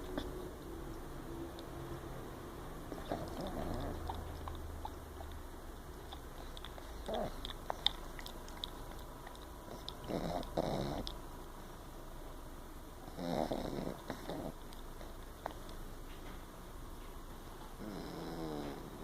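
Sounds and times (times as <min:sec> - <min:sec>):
puppy snoring: 0:02.9 - 0:05.3, 0:06.1 - 0:11.2, 0:13.0 - 0:15.6, 0:17.8 - 0:19.0.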